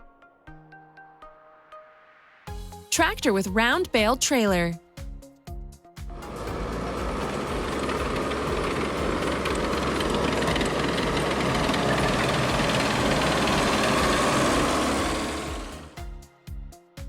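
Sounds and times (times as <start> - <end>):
tractor engine running: 6.2 - 16.0.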